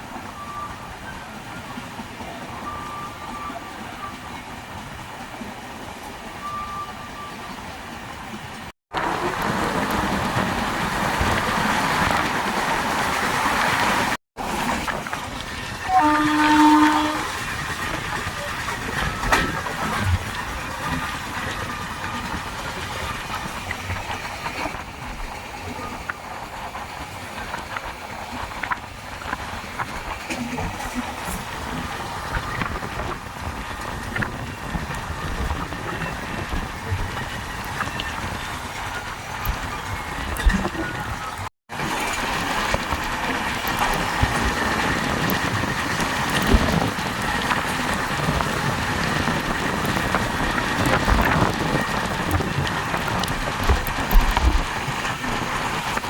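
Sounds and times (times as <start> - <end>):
train wheels rumbling on track: 0.0 - 56.0
rail joint clicks: 14.4 - 56.0.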